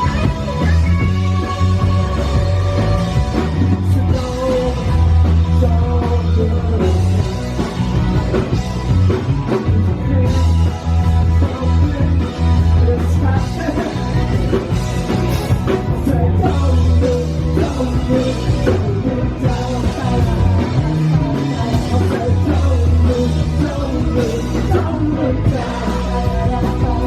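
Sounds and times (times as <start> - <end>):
person singing: 0.0 - 8.5, 15.7 - 27.0
bass guitar: 0.0 - 27.0
drums: 0.0 - 27.0
electric guitars: 0.0 - 27.0.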